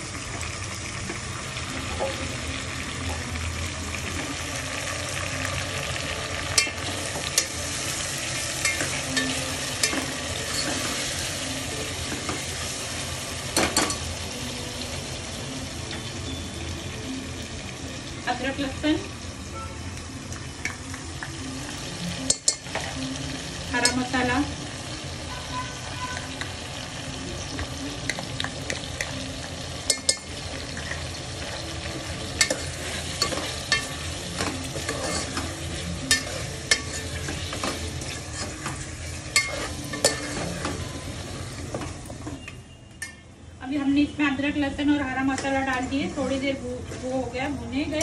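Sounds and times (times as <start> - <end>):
meat and onions sizzling in oil: 0.0 - 48.0
spoon clinking and scraping pot: 6.5 - 7.7, 8.6 - 11.2, 13.5 - 14.1, 22.2 - 23.0, 29.8 - 43.3.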